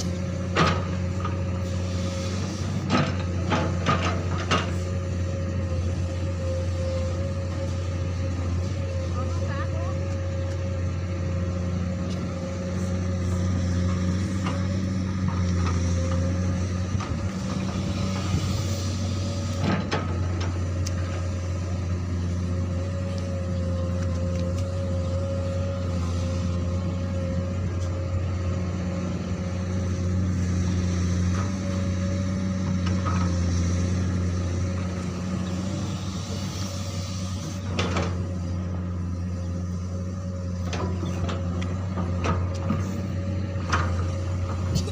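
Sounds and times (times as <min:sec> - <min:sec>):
excavator engine droning: 0:00.0 - 0:44.9.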